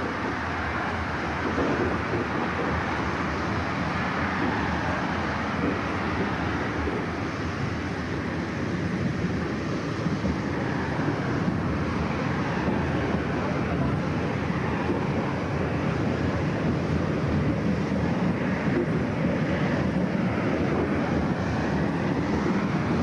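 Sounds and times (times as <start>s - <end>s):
road traffic passing: 0.0s - 23.0s
train rolling along track: 0.0s - 23.0s.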